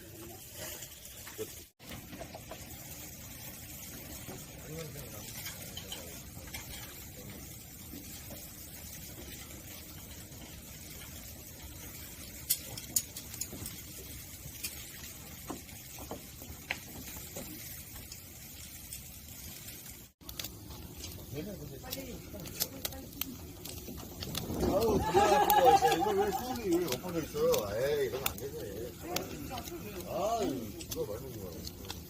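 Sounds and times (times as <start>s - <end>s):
firewood crackles and pops: 0.0s - 32.0s
wood fire hissing: 0.0s - 32.0s.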